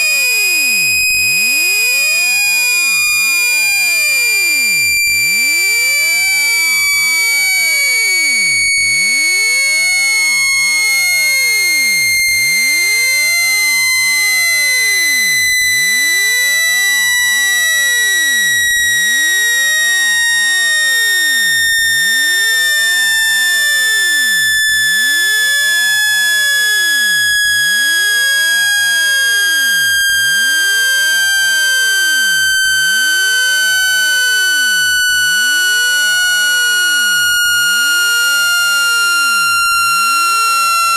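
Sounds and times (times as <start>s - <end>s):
electronic tone sliding down: 28.4s - 40.9s.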